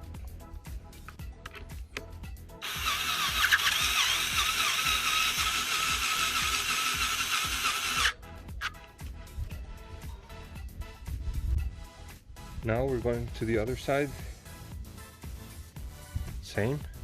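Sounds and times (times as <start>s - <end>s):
power drill whining: 2.6s - 8.8s.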